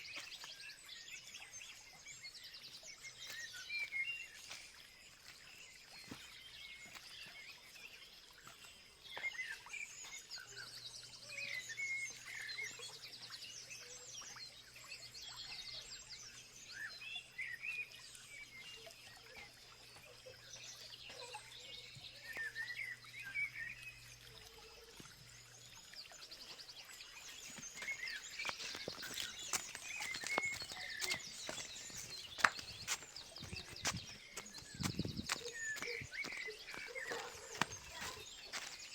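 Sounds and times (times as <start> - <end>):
birds chirping and calling: 26.5 - 38.9.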